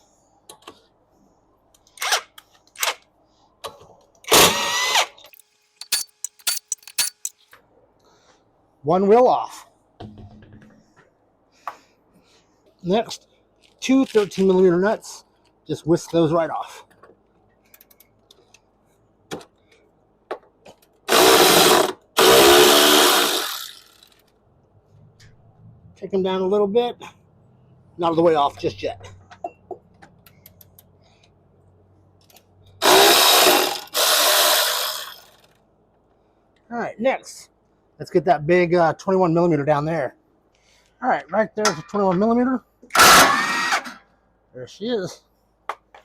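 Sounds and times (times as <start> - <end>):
power tool removing lug nuts: 4.3 - 7.3, 21.1 - 24.1, 32.8 - 35.5, 42.9 - 44.0
quick clicks: 5.3 - 7.4.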